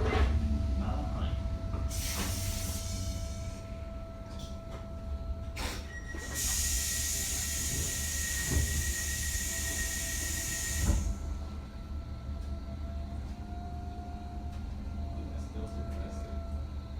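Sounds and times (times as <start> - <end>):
electric train rumbling: 0.0 - 16.9
loud air hiss: 1.9 - 3.6, 6.2 - 11.2.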